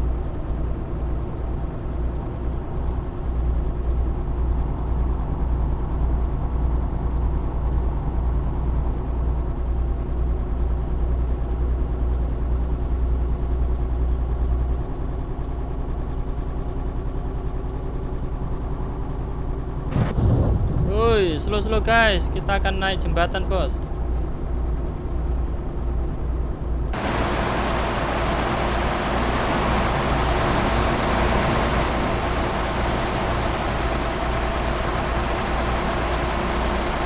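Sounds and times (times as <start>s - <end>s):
truck diesel engine rumbling: 27.0s - 37.0s.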